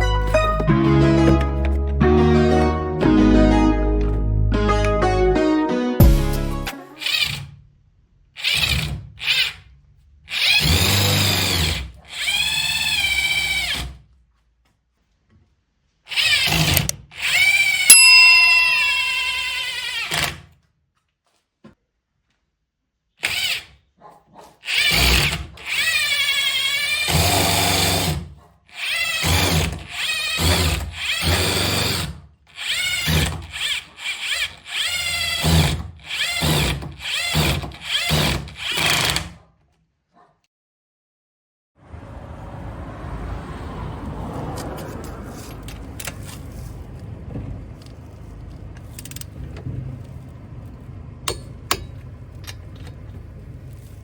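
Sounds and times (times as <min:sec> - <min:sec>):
cordless impact wrench bursts: 0:08.4 - 0:09.6, 0:10.3 - 0:14.0, 0:24.7 - 0:28.2, 0:28.8 - 0:39.4.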